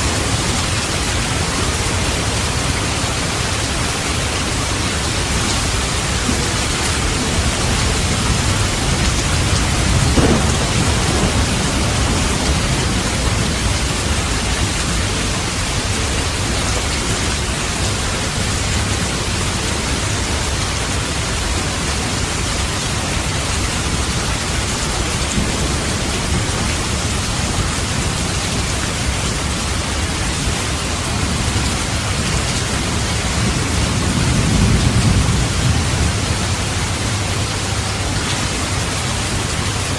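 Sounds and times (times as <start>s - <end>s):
heavy rain: 0.0s - 39.9s
rolling thunder: 4.9s - 17.0s, 25.0s - 29.8s, 31.1s - 38.2s.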